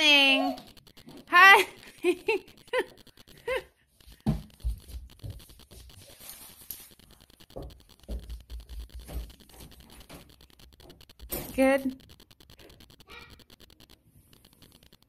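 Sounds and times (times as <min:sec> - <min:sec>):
person giggling: 0:01.6 - 0:03.8
crunchy snack being chewed: 0:12.0 - 0:15.0.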